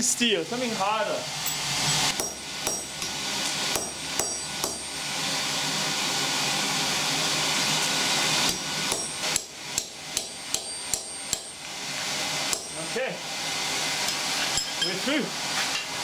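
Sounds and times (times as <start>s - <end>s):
hammer striking steel on anvil: 1.4s - 5.0s, 8.5s - 11.6s, 12.5s - 12.9s, 14.1s - 15.0s.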